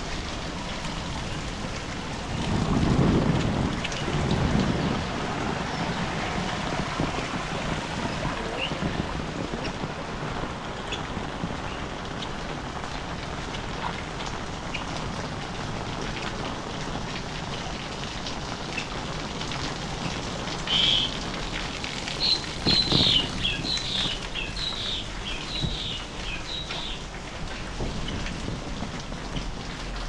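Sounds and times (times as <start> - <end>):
heavy rain: 0.0 - 30.0
bird chirping: 22.2 - 27.0.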